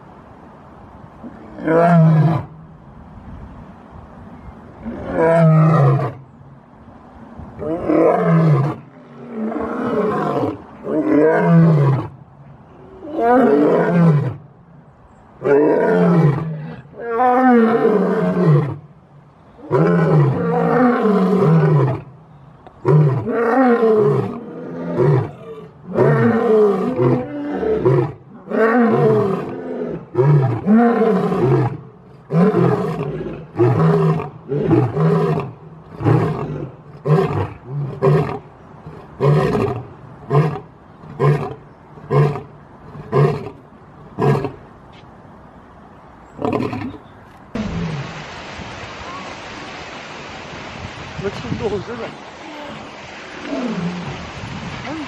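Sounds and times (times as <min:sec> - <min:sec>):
lion roaring: 0:07.6 - 0:12.1.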